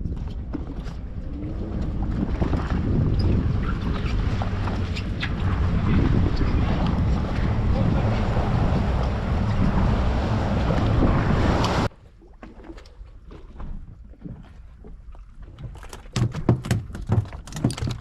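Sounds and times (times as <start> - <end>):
wind buffeting microphone: 0.0 - 11.9
boat engine: 0.0 - 15.1
knocks and clatter: 16.0 - 18.0.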